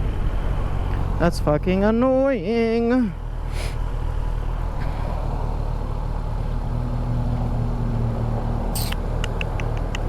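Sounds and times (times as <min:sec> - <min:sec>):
brief hiss: 0:03.5 - 0:03.8, 0:08.8 - 0:09.0.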